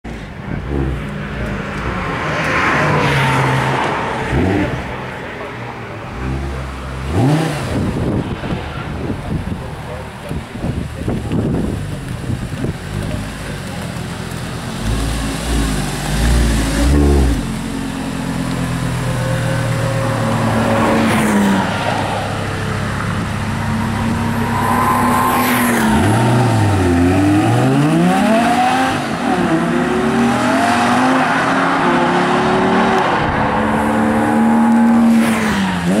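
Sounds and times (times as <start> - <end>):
car engine revving: 6.0 - 8.8, 12.8 - 19.0, 19.6 - 36.0.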